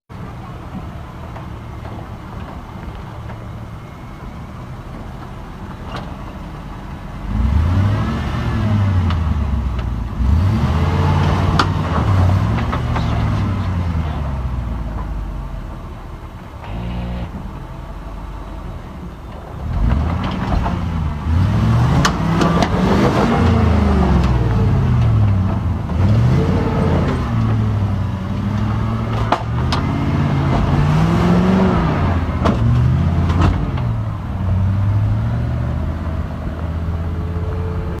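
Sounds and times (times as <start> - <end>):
off-road vehicle engine revving: 7.1 - 15.8, 16.5 - 18.9, 19.6 - 38.0.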